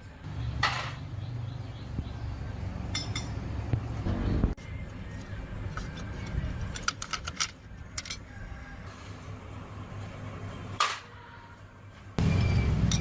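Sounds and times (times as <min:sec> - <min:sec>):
light metallic clinks and clicks: 0:02.9 - 0:03.5.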